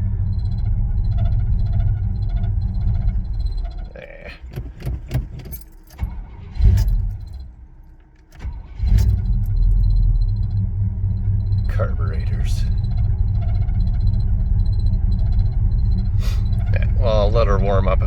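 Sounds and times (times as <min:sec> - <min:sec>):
engine idling rumble: 0:00.0 - 0:18.0
keys jingling: 0:02.8 - 0:09.8.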